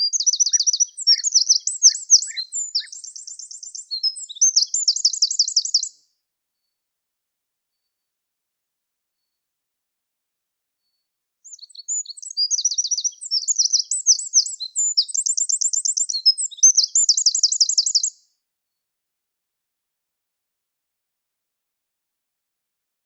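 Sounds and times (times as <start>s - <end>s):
songbird singing: 0.0s - 5.9s, 11.5s - 18.0s.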